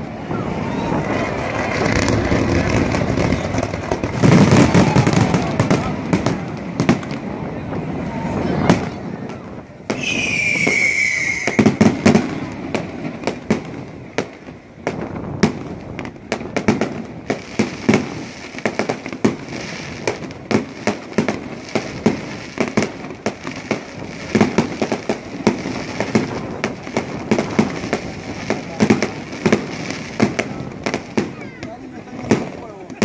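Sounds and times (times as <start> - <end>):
fireworks bangs and crackles: 0.0 - 33.0
heavy firework booms: 0.0 - 33.0
whistling firework falling in pitch: 9.3 - 12.4.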